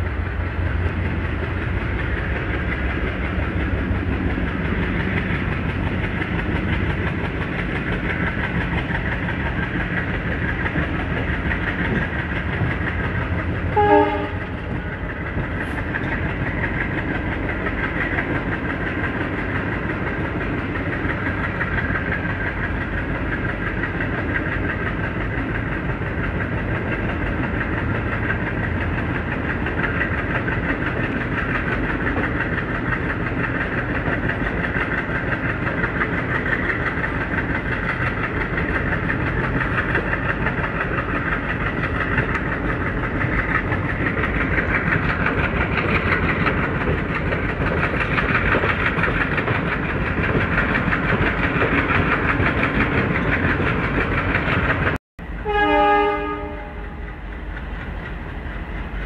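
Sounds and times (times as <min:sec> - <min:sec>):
diesel locomotive working: 0:00.0 - 0:59.0
train coach running over track: 0:00.0 - 0:59.0
train horn blast: 0:13.7 - 0:14.6, 0:55.4 - 0:57.1.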